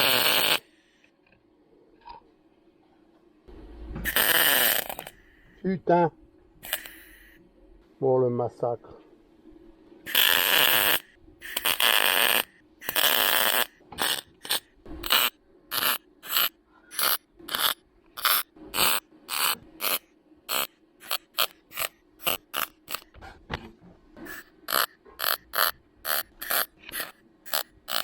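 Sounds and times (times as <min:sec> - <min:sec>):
welding arc bursts: 0:00.0 - 0:00.7, 0:04.0 - 0:05.2, 0:06.6 - 0:07.3, 0:10.1 - 0:23.1, 0:24.4 - 0:28.0.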